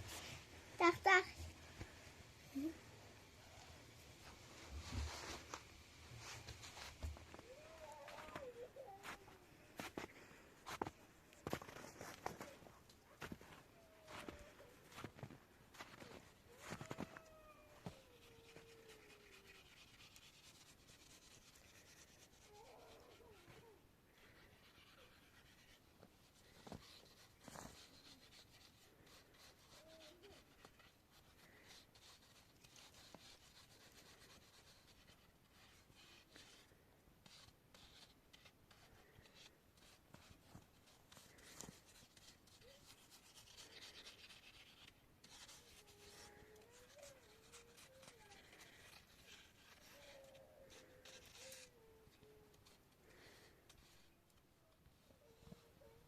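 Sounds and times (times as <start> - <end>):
rubbing and scraping: 17.8 - 54.2.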